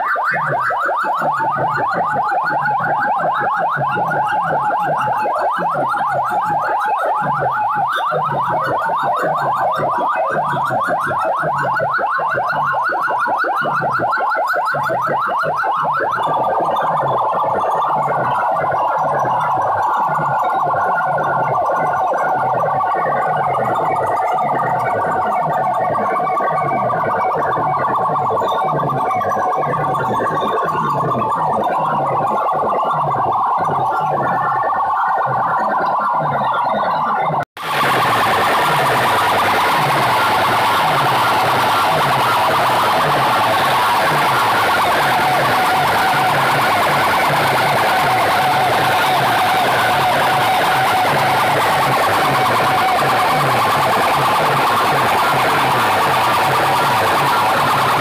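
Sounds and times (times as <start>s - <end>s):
loud dance music: 36.4s - 58.0s.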